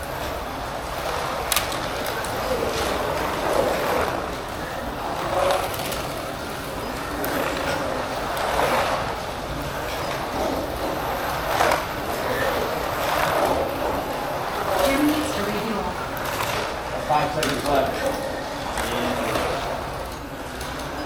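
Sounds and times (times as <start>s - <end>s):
slot cars whirring: 0.0s - 21.0s.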